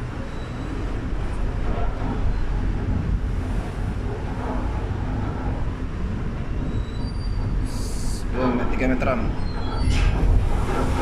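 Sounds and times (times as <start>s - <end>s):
ship low rumble: 0.0s - 11.0s
wind blowing over microphone: 0.0s - 11.0s.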